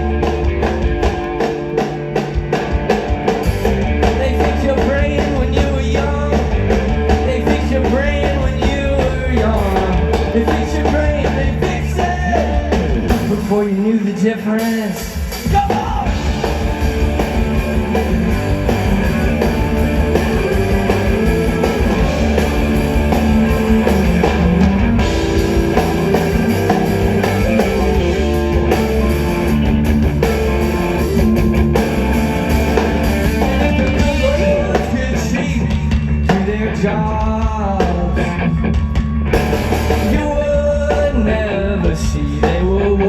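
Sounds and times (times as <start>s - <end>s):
bass guitar: 0.0s - 14.0s, 15.4s - 43.0s
electric guitars: 0.0s - 14.0s, 15.1s - 43.0s
drum kit: 0.0s - 43.0s
person singing: 33.4s - 39.0s.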